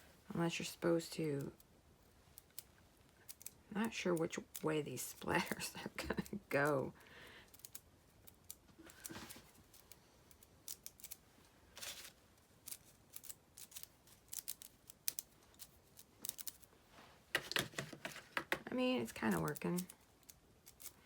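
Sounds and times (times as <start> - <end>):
brush flicking paint: 17.3 - 20.9.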